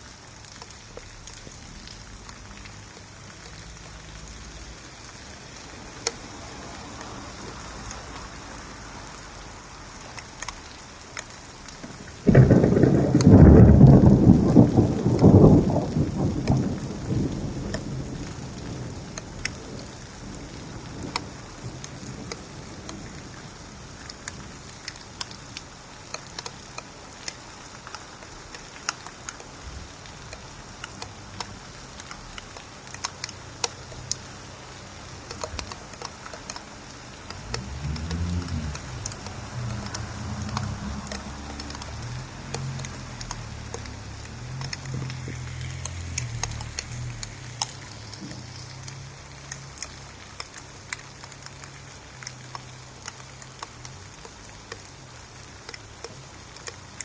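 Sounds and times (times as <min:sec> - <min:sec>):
raindrops ticking: 0:00.0 - 0:57.0
steady rain: 0:00.0 - 0:57.0
distant thunder rumble: 0:11.9 - 0:25.8, 0:35.2 - 0:49.3.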